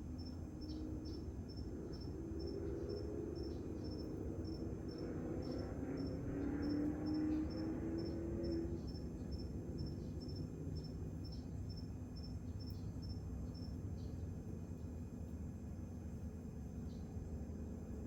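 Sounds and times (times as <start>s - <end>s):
crickets chirping: 0.1s - 14.2s.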